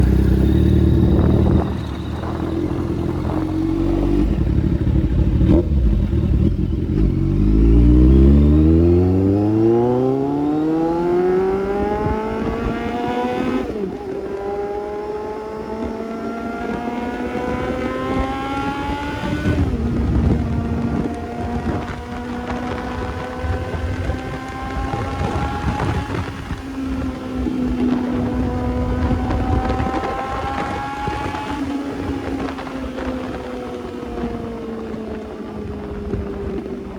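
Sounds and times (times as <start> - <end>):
motorcycle engine accelerating: 0.0 - 36.9.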